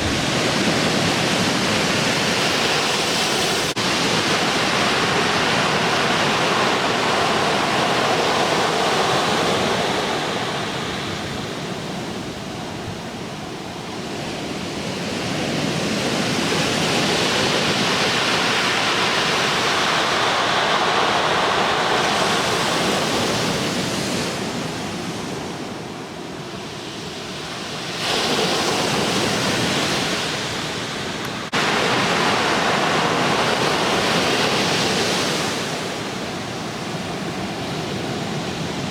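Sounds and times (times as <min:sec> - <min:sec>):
ocean waves rushing: 0:00.0 - 0:38.9.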